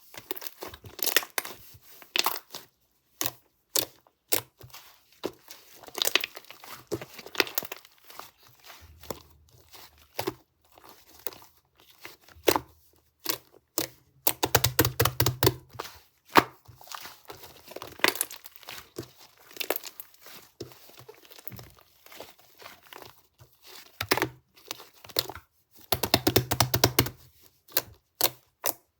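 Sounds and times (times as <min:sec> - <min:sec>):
slime clicking and popping: 0:13.2 - 0:15.6, 0:25.9 - 0:27.2.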